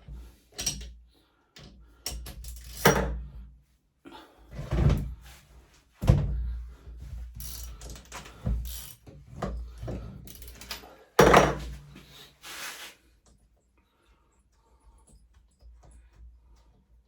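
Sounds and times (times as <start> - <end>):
metal tools knocking on workbench: 11.2 - 11.8.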